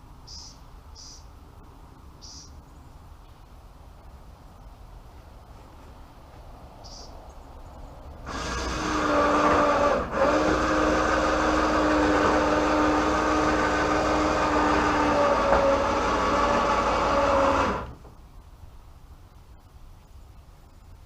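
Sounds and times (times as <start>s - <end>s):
small motor humming: 8.3s - 18.0s.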